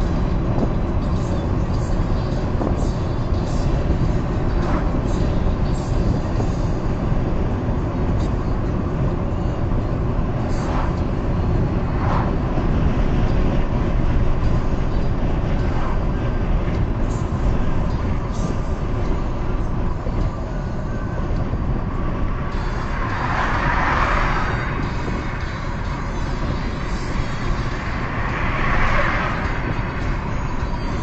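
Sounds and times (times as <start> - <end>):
car road noise rumble: 0.0 - 31.0
rushing swell: 10.5 - 14.9.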